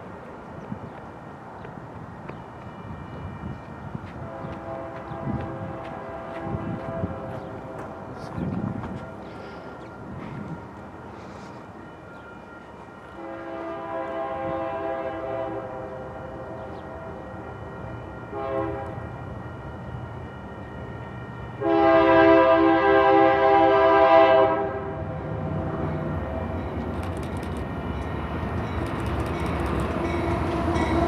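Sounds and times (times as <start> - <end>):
locomotive air horn blasts: 4.1 - 7.4, 13.1 - 16.2, 18.3 - 19.1, 21.6 - 25.1
diesel locomotive rumble: 21.5 - 31.0.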